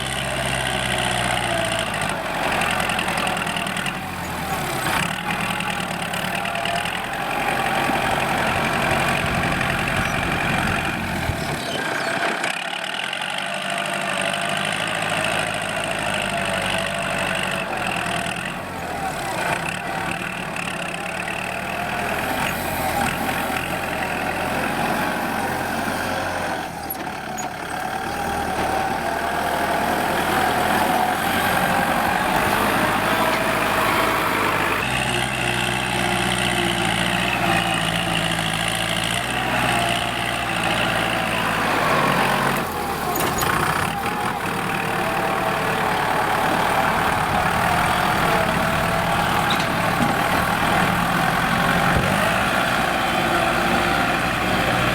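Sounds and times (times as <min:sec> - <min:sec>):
tractor diesel engine under load: 0:00.0 - 0:54.9.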